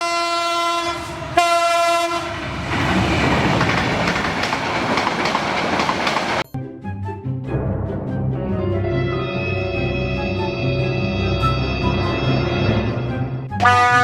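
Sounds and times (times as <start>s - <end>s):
train horn blasts: 0.0s - 2.6s, 13.6s - 14.0s
train rumble: 0.0s - 6.5s
wheels clattering on rails: 0.9s - 6.5s.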